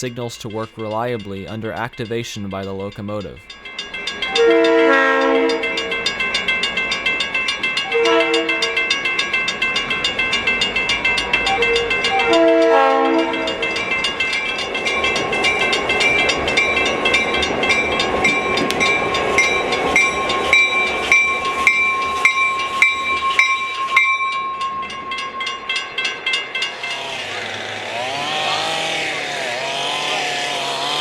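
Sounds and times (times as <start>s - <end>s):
crossing bell ringing: 0.0s - 31.0s
locomotive passing: 0.0s - 31.0s
locomotive horn blasts: 4.3s - 5.7s, 7.9s - 8.9s, 11.5s - 13.8s.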